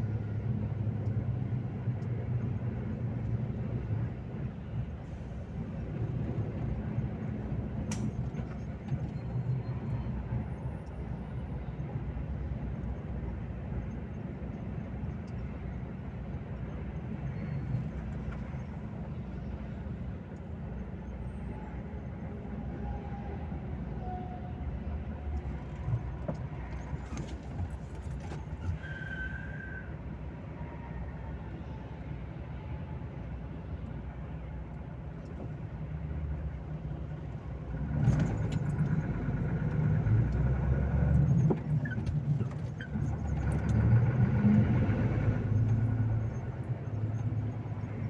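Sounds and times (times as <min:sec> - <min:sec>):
road noise: 0:00.0 - 0:48.0
diesel truck engine running: 0:34.1 - 0:48.0.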